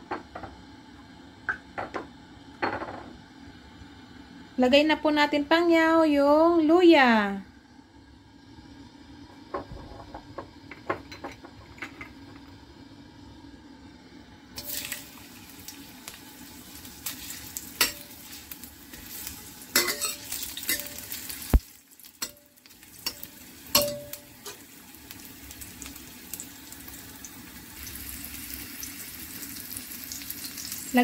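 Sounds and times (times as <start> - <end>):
ginger sizzling in hot oil: 12.2 - 31.0.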